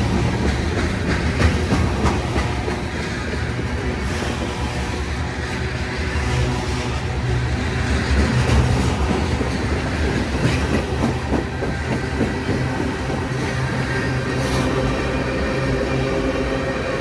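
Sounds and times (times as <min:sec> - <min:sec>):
train rumbling on tracks: 0:00.0 - 0:17.0.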